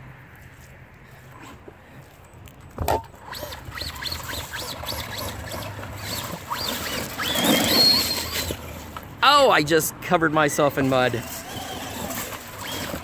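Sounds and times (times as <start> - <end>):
rc truck motor whining: 3.1 - 9.4, 10.7 - 13.0
mud spattering: 3.6 - 8.8.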